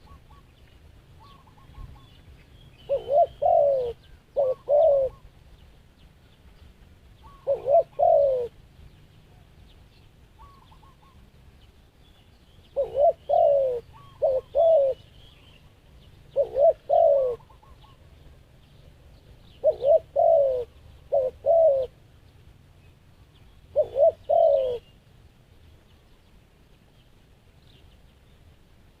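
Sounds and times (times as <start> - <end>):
small birds chirping: 0.0 - 29.0
dove cooing: 1.2 - 2.2, 2.8 - 5.4, 7.2 - 8.6, 10.4 - 11.3, 12.7 - 22.0, 23.7 - 25.0.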